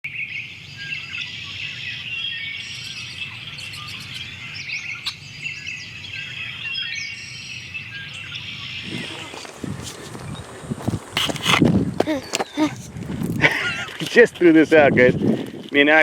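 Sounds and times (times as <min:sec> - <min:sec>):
many birds chirping: 0:00.1 - 0:16.0.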